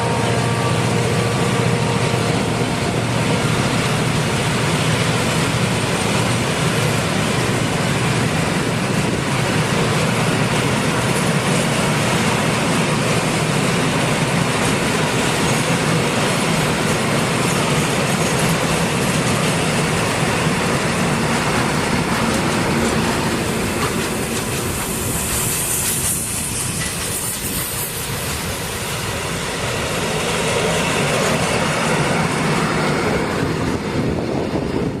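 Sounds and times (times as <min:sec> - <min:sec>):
train wheels clattering on rails: 0:00.0 - 0:35.0
high-pitched hiss or squeal: 0:24.1 - 0:31.3.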